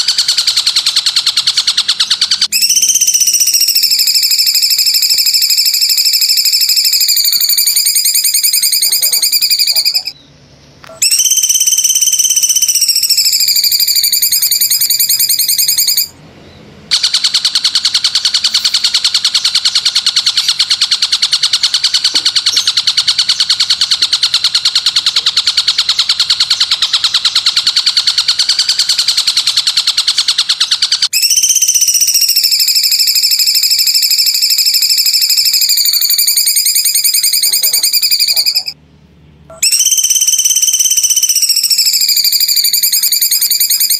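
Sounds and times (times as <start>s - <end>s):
rapid buzzing bird trill: 0.0s - 16.2s, 16.9s - 38.8s, 39.5s - 43.9s
piercing whistled bird note: 2.1s - 10.2s, 10.9s - 16.1s, 39.5s - 43.9s.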